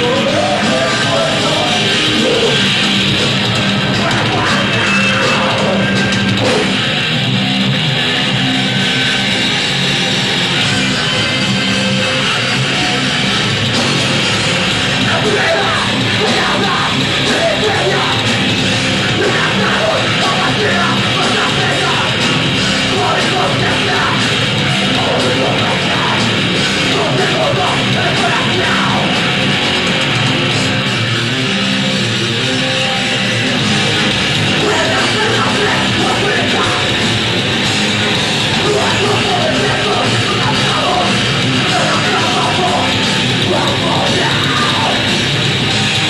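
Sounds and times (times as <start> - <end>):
singer yelling: 0.0 - 7.0, 14.9 - 29.7, 34.4 - 46.0
heavy metal band playing: 0.0 - 46.0.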